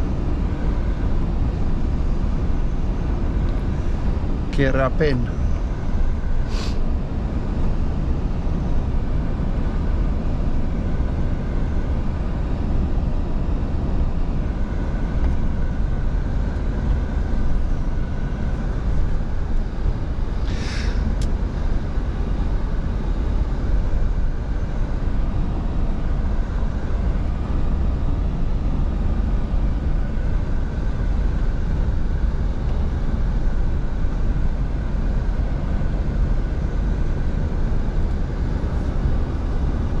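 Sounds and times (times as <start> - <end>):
short hiss: 6.5 - 6.8, 20.4 - 21.0.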